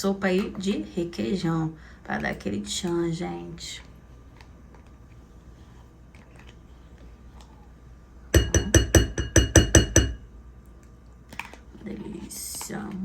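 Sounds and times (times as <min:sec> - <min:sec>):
metal spoon clinking against bowl: 0:08.4 - 0:10.2.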